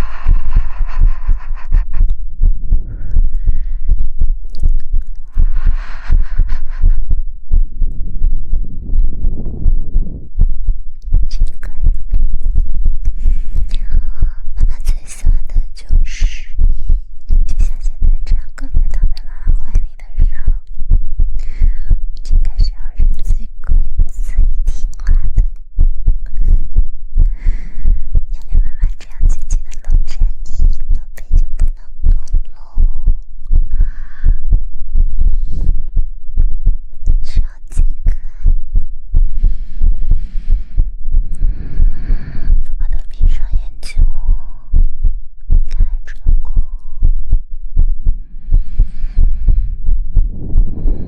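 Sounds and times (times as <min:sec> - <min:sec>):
breathy whisper-like hiss: 0:00.0 - 0:02.0
hands patting microphone: 0:00.0 - 0:14.1.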